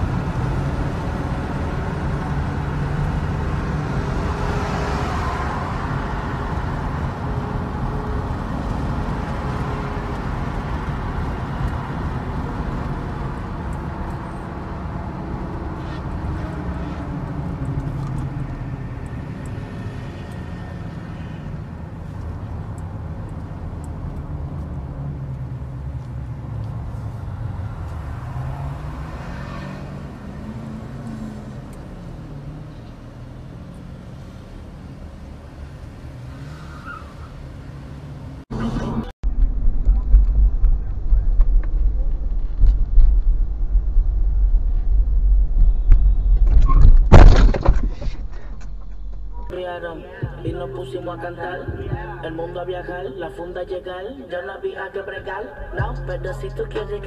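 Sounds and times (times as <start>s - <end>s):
vehicle engine: 0.0s - 54.1s, 54.9s - 57.0s
road noise: 0.0s - 57.0s.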